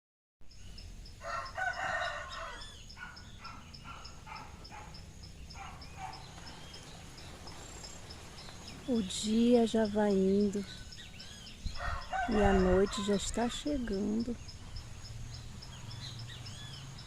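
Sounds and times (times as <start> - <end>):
rooster crowing: 1.2 - 3.3, 11.7 - 13.7.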